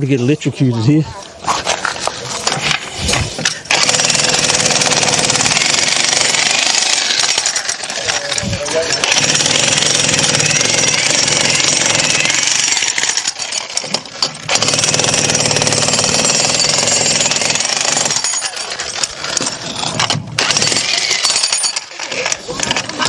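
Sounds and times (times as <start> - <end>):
jackhammer hammering into masonry: 3.7 - 21.9.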